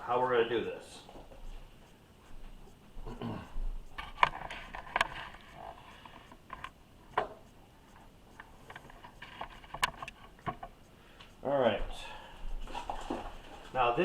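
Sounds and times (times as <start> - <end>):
camera handling knocks and clatters: 4.0 - 5.4, 8.7 - 10.7.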